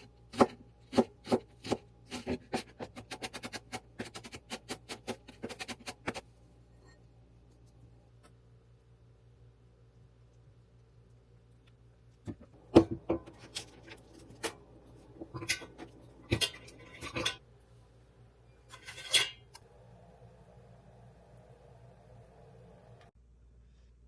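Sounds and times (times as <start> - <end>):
dishes and utensils clinking: 15.2 - 17.4.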